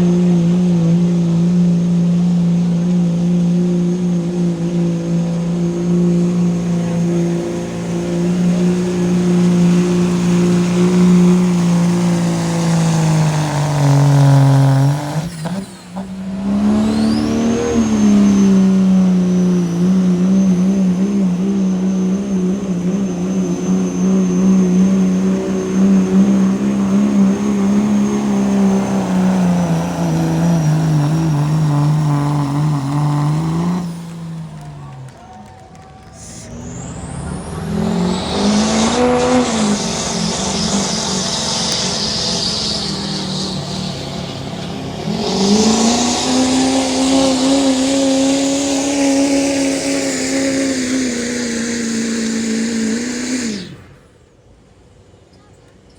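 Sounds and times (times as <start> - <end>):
truck engine at high revs: 0.0 - 54.5.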